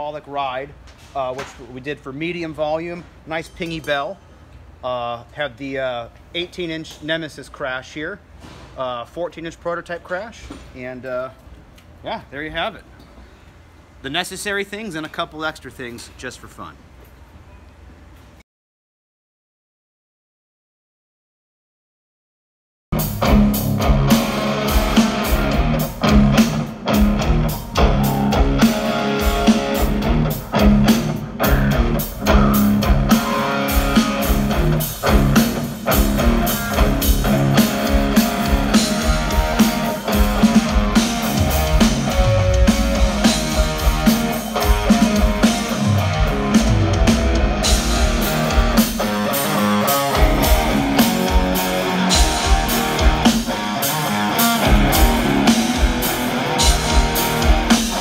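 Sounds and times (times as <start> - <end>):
drum kit with cymbals: 23.0 - 58.0
electric guitar and bass: 23.0 - 58.0.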